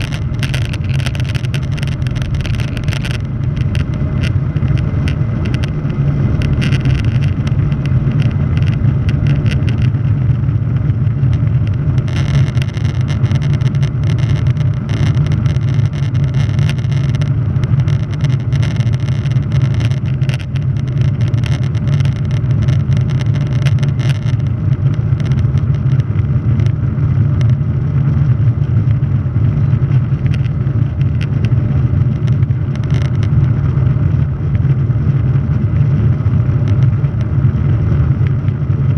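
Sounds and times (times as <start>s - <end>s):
jet engines rumbling: 0.0s - 12.1s
crackling clicks: 0.0s - 38.9s.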